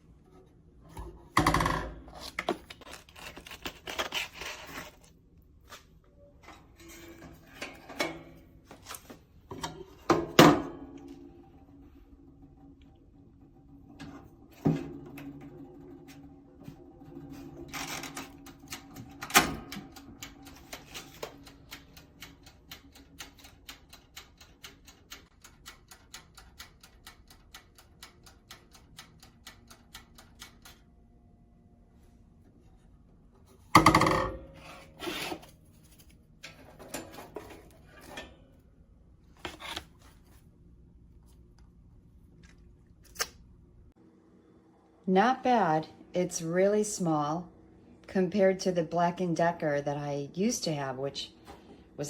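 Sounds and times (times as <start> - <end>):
wind-up timer ticking: 20.0 - 30.6.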